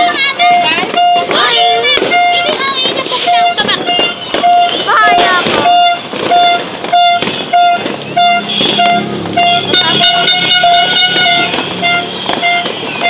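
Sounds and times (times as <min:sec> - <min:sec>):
firecracker pops: 0:00.0 - 0:13.0
brassy horn: 0:03.2 - 0:13.0
horn beeping in short blasts: 0:03.2 - 0:13.0.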